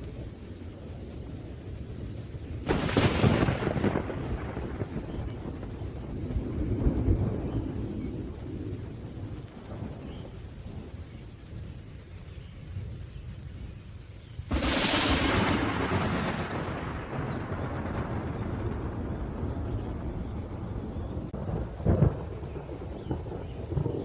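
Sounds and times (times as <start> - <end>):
low rumble of thunder: 0.0 - 24.0
rain: 0.0 - 24.0
sharp crack of thunder: 2.6 - 10.9, 14.5 - 24.0.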